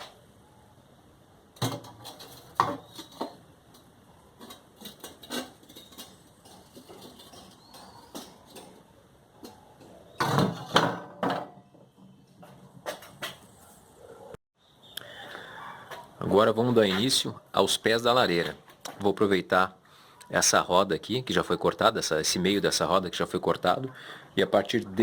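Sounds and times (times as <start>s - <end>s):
steel pieces clanking: 4.4s - 8.8s.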